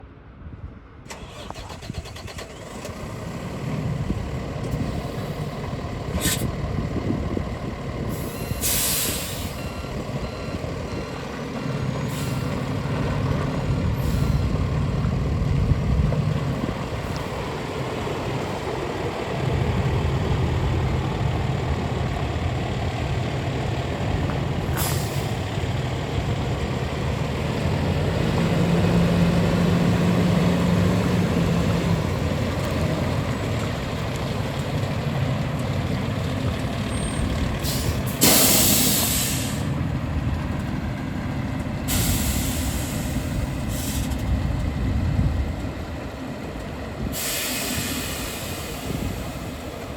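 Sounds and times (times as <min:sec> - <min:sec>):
diesel truck engine running: 0:01.1 - 0:49.9
air brake hiss: 0:06.2 - 0:06.5, 0:08.1 - 0:09.9, 0:24.7 - 0:25.4, 0:37.6 - 0:39.7, 0:41.9 - 0:44.2, 0:47.1 - 0:49.5.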